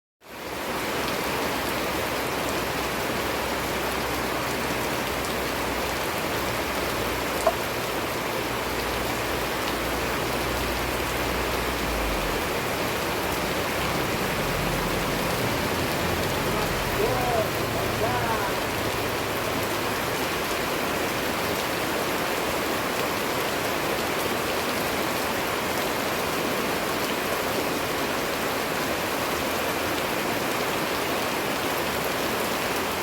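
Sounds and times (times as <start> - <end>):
steady rain falling: 0.2 - 33.0.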